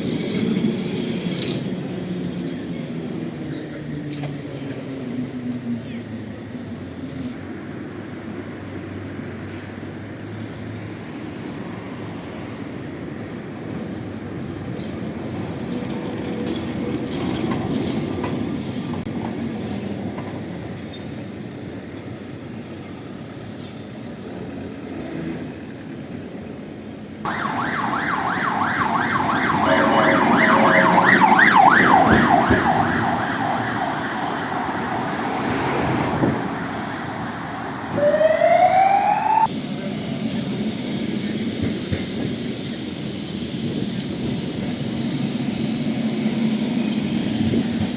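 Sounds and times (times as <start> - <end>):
street noise: 0.0 - 47.9
emergency siren yelping: 27.3 - 39.5
rising whine: 27.3 - 39.5.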